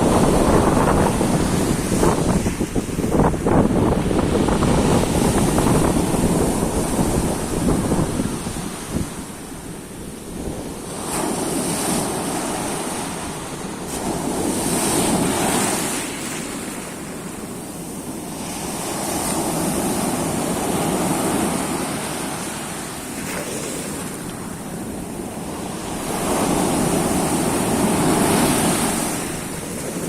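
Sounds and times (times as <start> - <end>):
wind buffeting microphone: 0.0 - 9.6
sea waves breaking on shore: 0.0 - 30.0.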